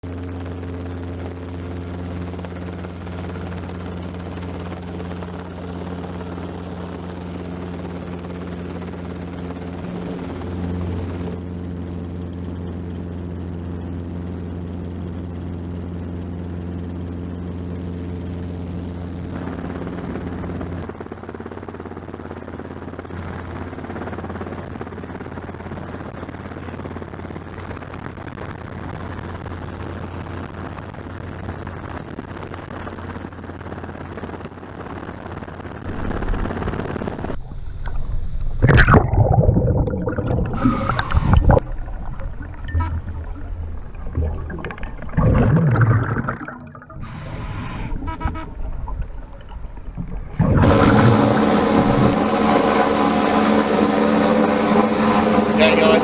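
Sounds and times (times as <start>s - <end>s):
helicopter engine and rotor drone: 0.0s - 37.4s, 50.6s - 56.0s.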